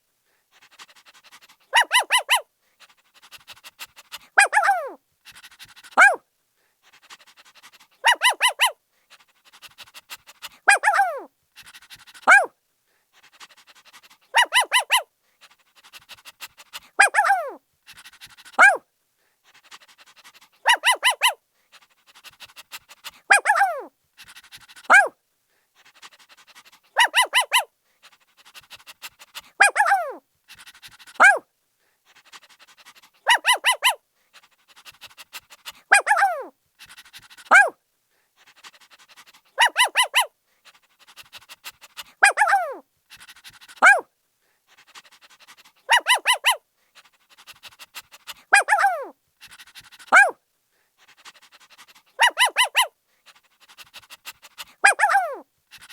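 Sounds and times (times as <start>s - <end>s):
puppy panting: 0.5s - 6.2s, 6.8s - 12.5s, 13.1s - 18.8s, 19.4s - 55.9s
puppy yipping: 1.7s - 2.4s, 4.4s - 5.0s, 6.0s - 6.2s, 8.0s - 8.8s, 10.7s - 11.3s, 12.2s - 12.5s, 14.3s - 15.1s, 17.0s - 17.6s, 18.6s - 18.8s, 20.6s - 21.4s, 23.3s - 23.9s, 24.9s - 25.1s, 27.0s - 27.7s, 29.6s - 30.2s, 31.2s - 31.4s, 33.2s - 34.0s, 35.9s - 36.5s, 37.5s - 37.7s, 39.6s - 40.3s, 42.2s - 42.8s, 43.8s - 44.0s, 45.9s - 46.6s, 48.5s - 49.1s, 50.1s - 50.4s, 52.2s - 52.9s, 54.8s - 55.4s.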